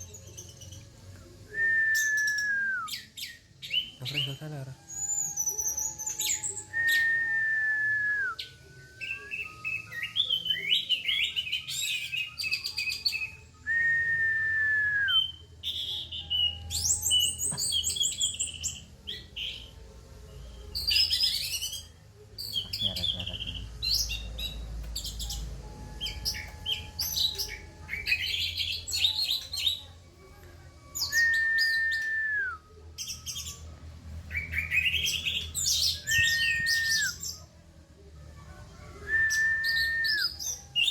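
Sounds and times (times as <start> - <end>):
bird chattering song: 20.8 - 29.8
long falling bird whistle: 35.9 - 37.2.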